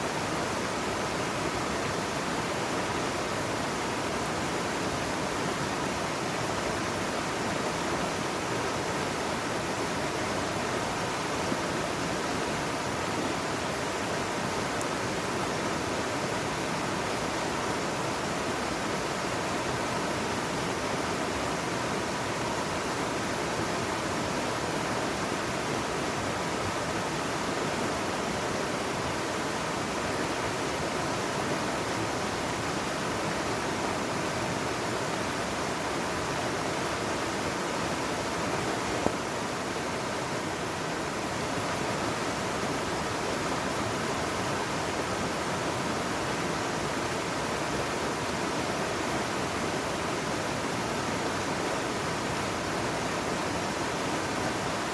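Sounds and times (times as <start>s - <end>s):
stream rushing: 0.0s - 54.9s.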